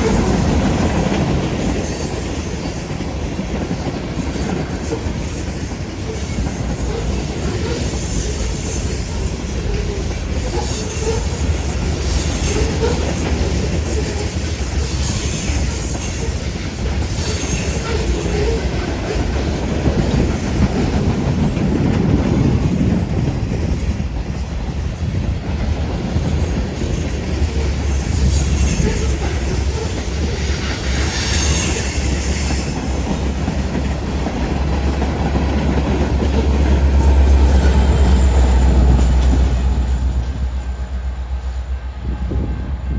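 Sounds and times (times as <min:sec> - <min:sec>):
railroad cars rumbling past: 0:00.0 - 0:42.9
wheels squealing: 0:04.4 - 0:19.4, 0:26.6 - 0:40.8
wheels clacking over rail: 0:25.7 - 0:39.8.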